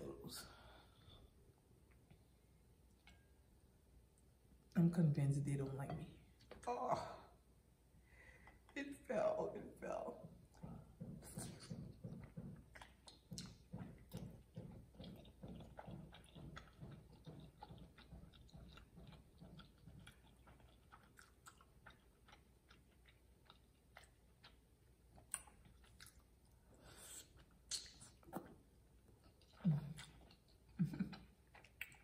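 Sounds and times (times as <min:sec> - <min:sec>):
person chewing soft food: 0:10.3 - 0:32.0
sharp wet mouth clicks: 0:27.6 - 0:28.5.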